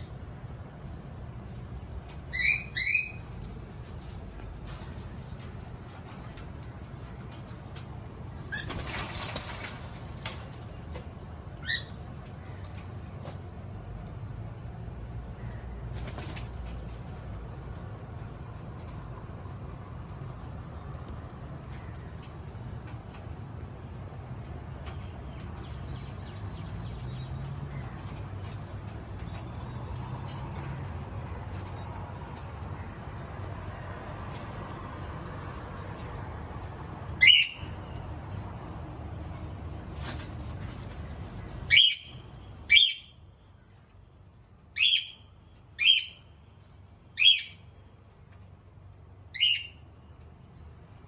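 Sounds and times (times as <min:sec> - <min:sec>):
cockatiel shrill calls: 0:02.3 - 0:03.2, 0:37.2 - 0:37.7, 0:41.7 - 0:42.1, 0:44.8 - 0:45.2, 0:45.8 - 0:46.2, 0:47.2 - 0:47.6, 0:49.4 - 0:49.8
faint high bird chirps: 0:02.3 - 0:03.3, 0:37.2 - 0:37.8, 0:41.7 - 0:43.2, 0:44.8 - 0:46.3, 0:47.2 - 0:48.4, 0:49.3 - 0:49.9.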